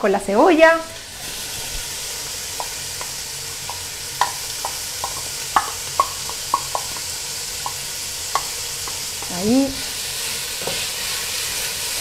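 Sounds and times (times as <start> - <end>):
meat sizzling in hot oil: 0.0 - 12.0
spoon knocking against pot: 3.7 - 9.4.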